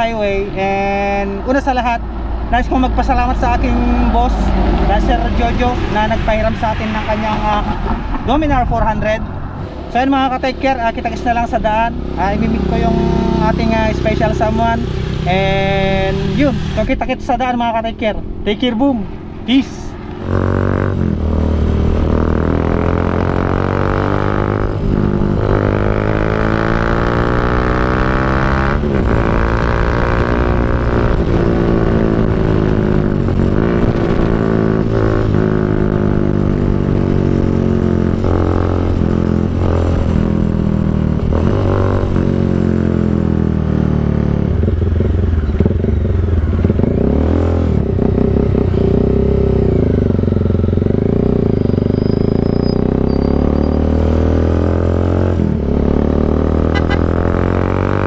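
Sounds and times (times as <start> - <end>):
motorcycle engine shifting gears: 19.2 - 58.0.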